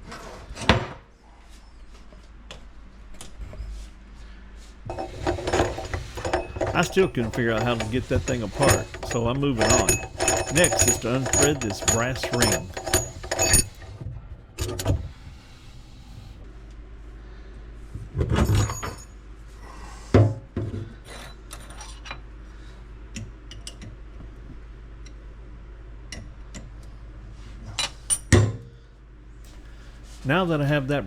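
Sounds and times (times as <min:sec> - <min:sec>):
metallic clicks and knocks: 0:04.9 - 0:13.9.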